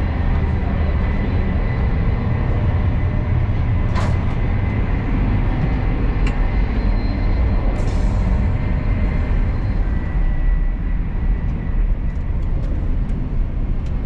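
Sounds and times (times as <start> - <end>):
train rumble and hiss from inside: 0.0 - 14.0.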